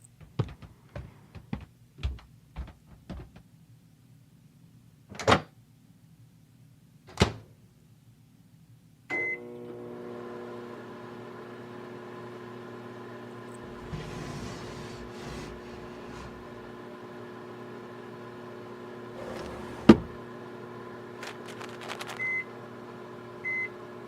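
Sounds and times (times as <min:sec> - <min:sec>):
microwave oven humming: 0:09.1 - 0:24.0.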